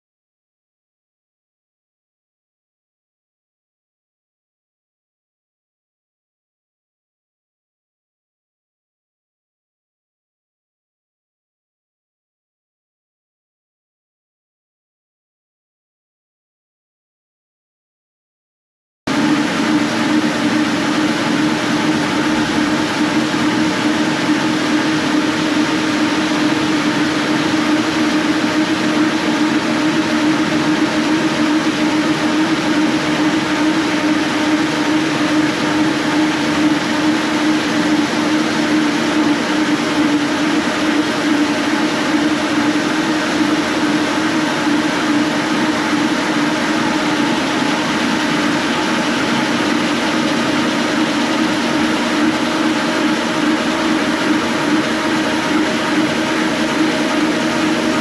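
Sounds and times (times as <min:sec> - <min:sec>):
floor sanding machine grinding: 0:19.1 - 0:58.0.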